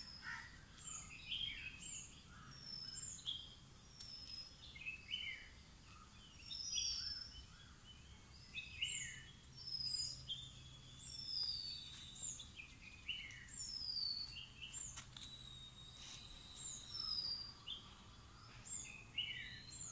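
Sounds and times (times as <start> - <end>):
small birds singing: 0.0 - 19.9
long held whistle: 15.2 - 17.5.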